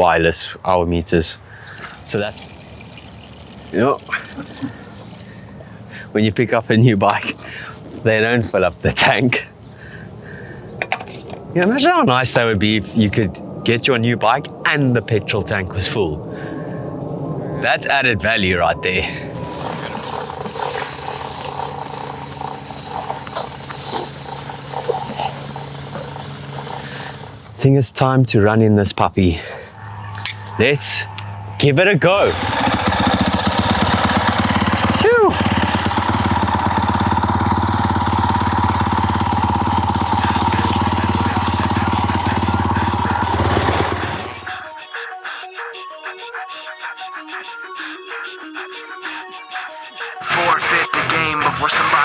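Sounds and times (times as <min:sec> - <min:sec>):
petrol pouring into fuel tank: 0:01.6 - 0:05.4, 0:19.3 - 0:27.6, 0:32.2 - 0:44.5
motorcycle engine running steadily: 0:21.0 - 0:27.6, 0:32.2 - 0:44.6.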